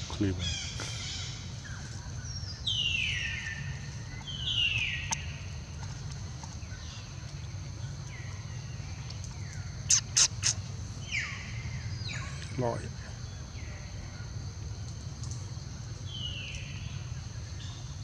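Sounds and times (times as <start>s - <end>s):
baby monkey squealing: 9.9s - 10.6s.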